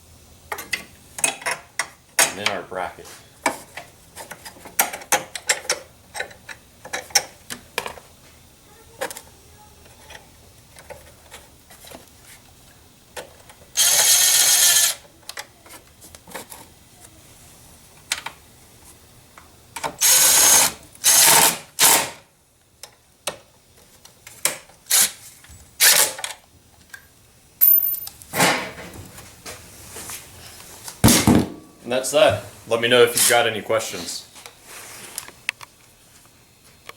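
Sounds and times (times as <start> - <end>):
power tool bursts: 13.8 - 15.0, 20.0 - 22.2, 25.8 - 26.2.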